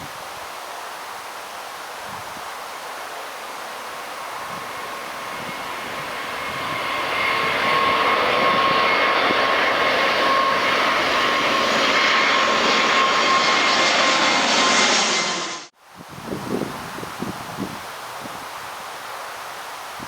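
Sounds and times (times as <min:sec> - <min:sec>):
jet engines running with high whine: 0:03.0 - 0:15.7.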